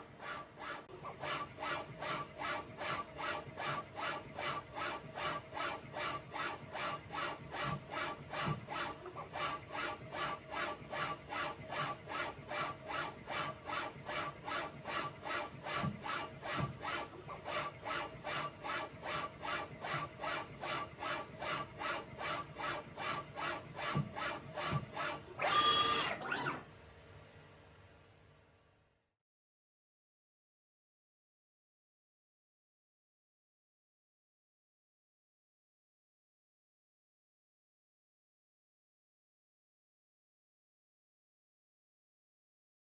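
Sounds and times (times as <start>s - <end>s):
machine whir: 9.4s - 26.7s.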